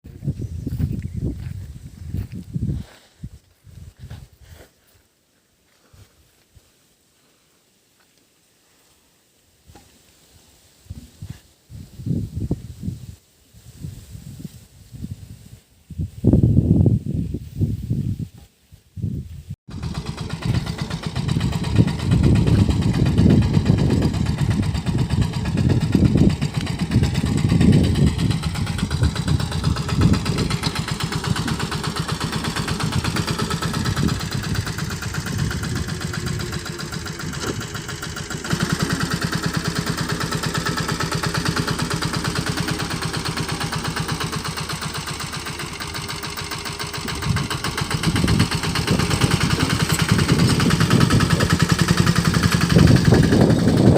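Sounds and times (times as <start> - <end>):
mini tractor engine running: 19.7 - 53.9.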